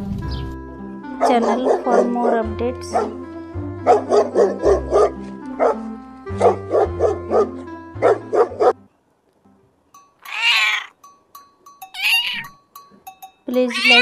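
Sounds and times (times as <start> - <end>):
background music with low notes: 0.0 - 10.2
dog barking: 1.2 - 3.2, 3.8 - 8.8
cat meowing: 10.3 - 11.0, 12.0 - 12.6, 13.7 - 14.0.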